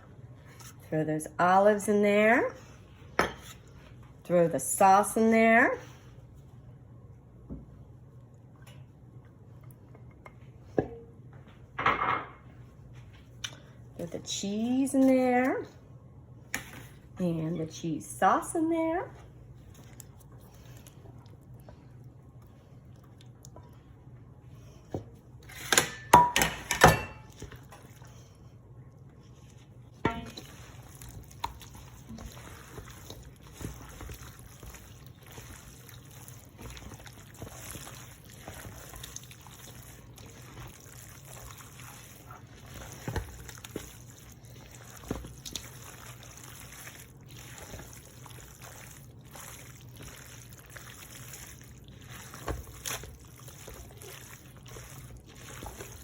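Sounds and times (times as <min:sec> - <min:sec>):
thick wet mixture being poured: 0:29.3 - 0:56.0.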